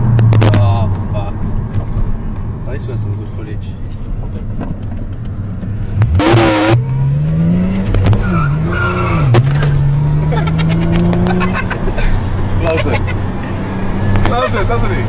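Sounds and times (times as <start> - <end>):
car engine revving: 5.4 - 15.0
tyre squeal: 8.0 - 10.0.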